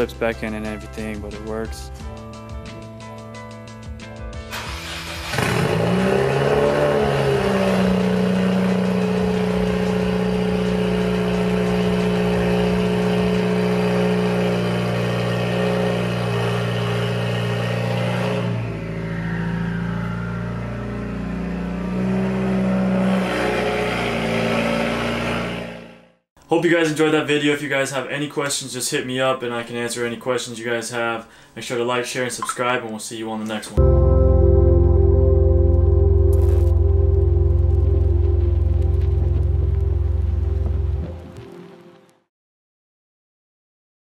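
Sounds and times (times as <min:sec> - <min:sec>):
car engine revving: 0:04.5 - 0:26.1.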